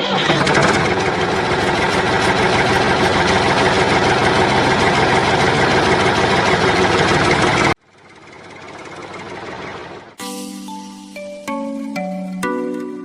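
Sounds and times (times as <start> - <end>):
tractor engine idling: 0.0 - 10.2.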